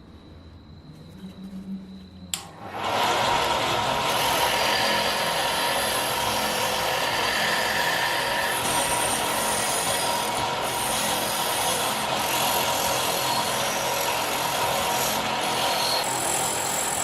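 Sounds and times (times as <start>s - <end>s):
faint steady whine: 0.0s - 2.7s
tool grinding on metal: 3.0s - 17.0s.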